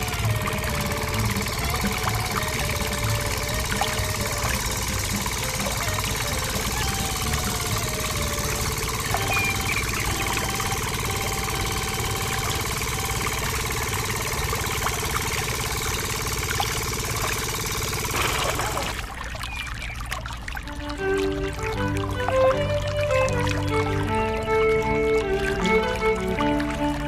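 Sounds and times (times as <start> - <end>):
music: 0.0 - 14.2, 20.7 - 27.0
small motor running: 0.0 - 27.0
water pouring: 0.0 - 27.0.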